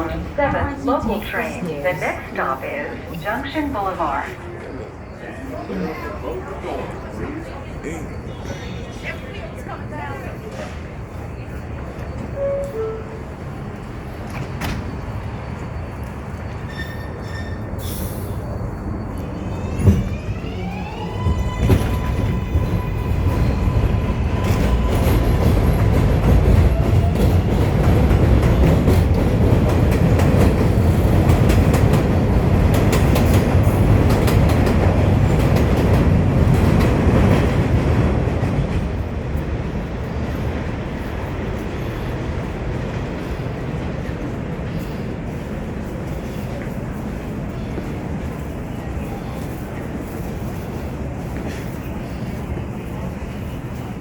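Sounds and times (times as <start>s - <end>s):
train running rumble: 6.0s - 54.0s.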